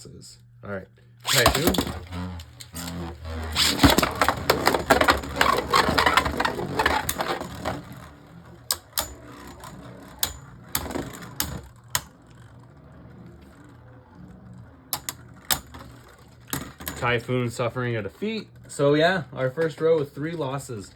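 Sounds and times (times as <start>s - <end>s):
spinning top launch: 1.2s - 12.2s
faint spinning tops: 1.2s - 17.5s
spinning tops clashing: 1.3s - 12.1s.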